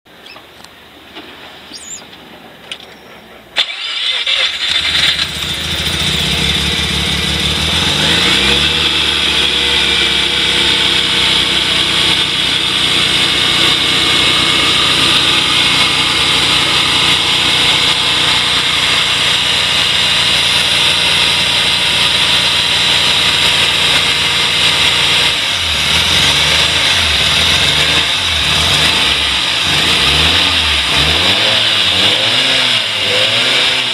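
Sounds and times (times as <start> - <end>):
rotary engine starting and idling: 3.5 - 33.9.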